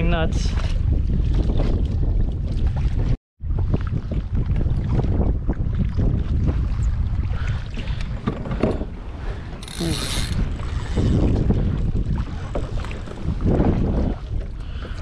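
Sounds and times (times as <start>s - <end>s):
water against kayak: 0.0s - 15.0s
wind rumble on microphone: 0.0s - 15.0s
fishing reel ratcheting buzz: 9.6s - 11.1s.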